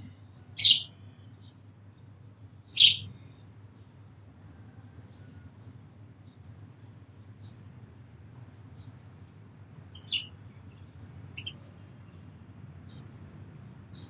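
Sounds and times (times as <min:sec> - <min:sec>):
small birds chirping: 0:00.0 - 0:04.6, 0:05.6 - 0:14.0.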